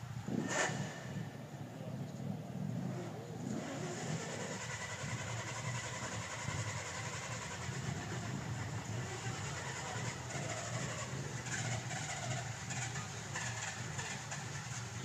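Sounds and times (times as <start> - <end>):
car engine running: 3.1 - 15.0.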